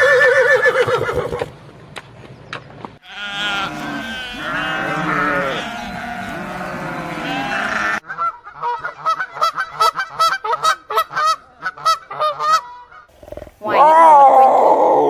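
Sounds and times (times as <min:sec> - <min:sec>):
sheep or goats bleating: 0:03.0 - 0:08.0
geese honking: 0:03.0 - 0:10.6.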